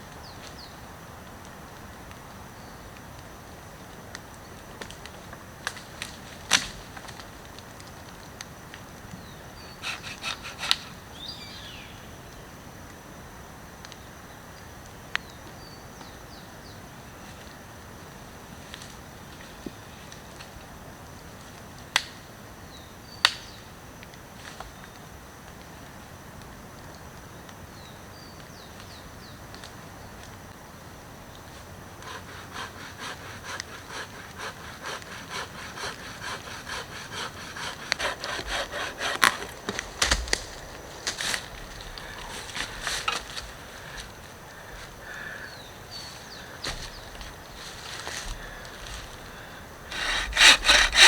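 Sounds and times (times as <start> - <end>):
hand saw cutting wood: 9.7 - 11.0, 32.0 - 40.5, 49.9 - 51.0.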